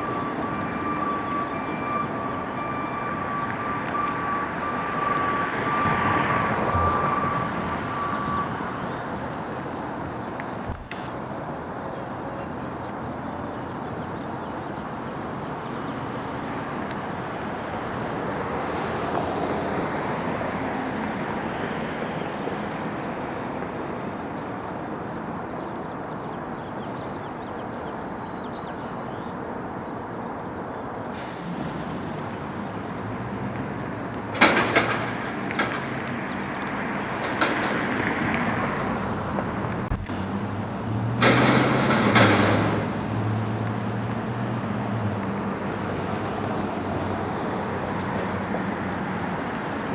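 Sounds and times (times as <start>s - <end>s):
garbage truck engine running: 31.2s - 46.2s
loud clattering and banging: 34.3s - 38.8s, 39.7s - 43.5s.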